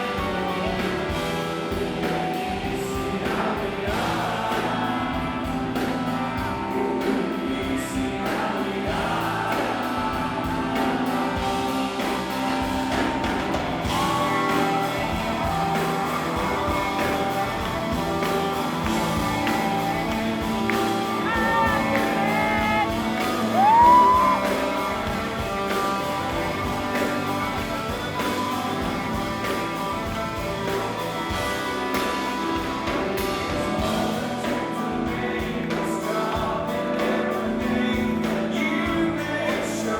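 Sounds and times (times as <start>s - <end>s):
live band music: 0.0s - 39.9s
person singing: 0.0s - 39.9s
voices singing along: 0.0s - 39.9s
loud rising shout: 11.0s - 33.8s.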